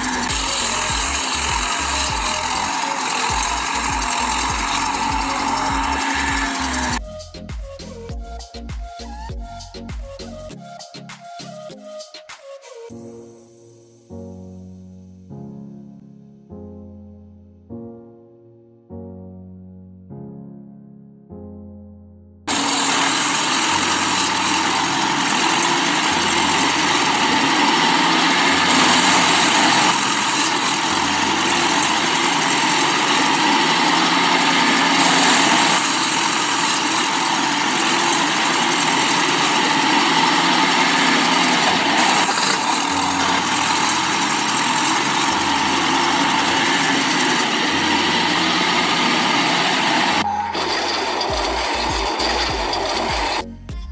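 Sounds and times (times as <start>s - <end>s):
engine idling with low pulse: 0.0s - 10.5s.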